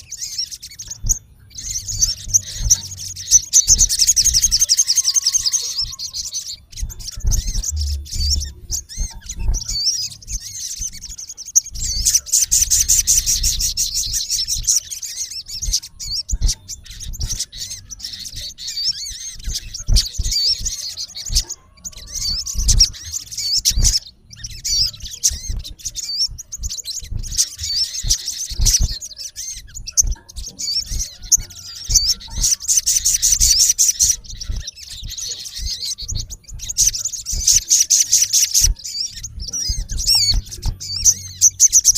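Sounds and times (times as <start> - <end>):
bird high-pitched chirping calls: 0.0 - 41.9
low thumps: 6.7 - 11.1.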